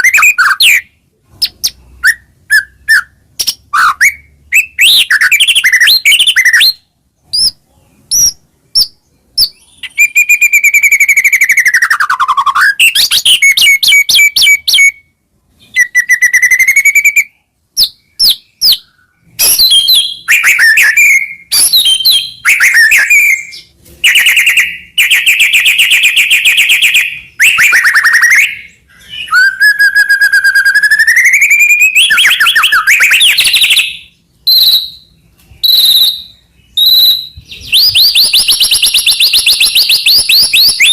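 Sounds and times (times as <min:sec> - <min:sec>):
songbird singing varied song: 0:00.0 - 0:40.9.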